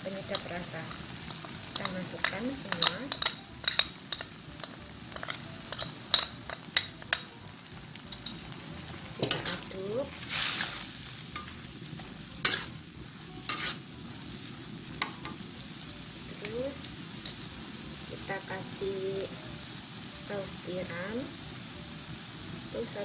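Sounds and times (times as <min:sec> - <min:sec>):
short hiss: 0:10.2 - 0:11.0.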